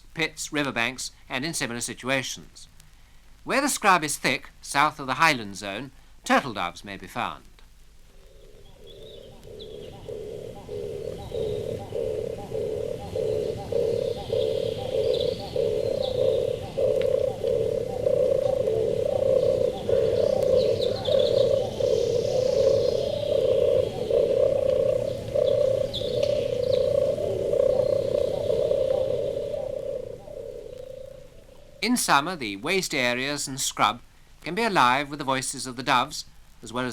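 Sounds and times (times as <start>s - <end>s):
turtle dove purring: 8.0s - 31.9s
small birds chirping: 8.0s - 33.6s.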